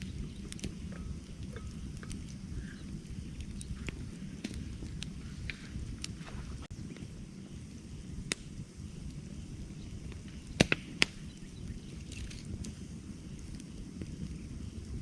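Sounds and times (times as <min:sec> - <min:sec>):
wood snapping and popping: 0:00.0 - 0:02.4, 0:03.3 - 0:06.4, 0:10.1 - 0:11.4
campfire low rumble: 0:00.0 - 0:15.0.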